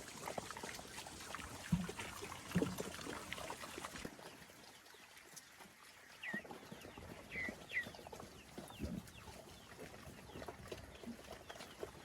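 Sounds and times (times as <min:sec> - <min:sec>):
birds chirping: 0:06.1 - 0:11.8.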